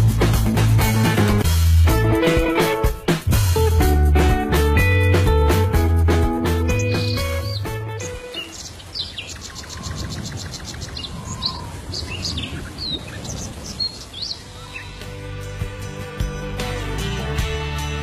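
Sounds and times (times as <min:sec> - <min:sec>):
fast ticking bird trill: 0:06.7 - 0:11.2
small birds chirping: 0:06.7 - 0:15.1.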